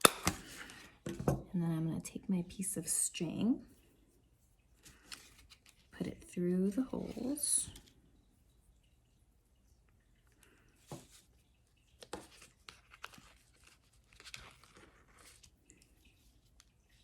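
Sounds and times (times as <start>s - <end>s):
paper and cardboard crinkling: 4.8s - 6.2s, 11.9s - 17.0s.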